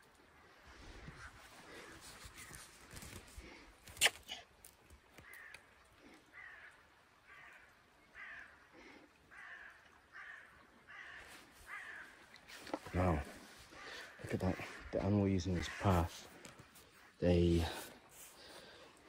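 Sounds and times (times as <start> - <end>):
bird calling: 9.3 - 17.8.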